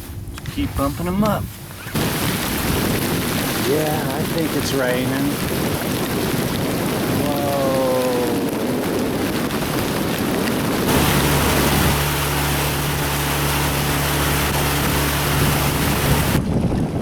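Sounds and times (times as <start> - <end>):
wind on microphone: 0.0 - 17.0
boat motor humming: 1.8 - 4.8, 5.4 - 17.0
rain hissing: 1.8 - 16.4.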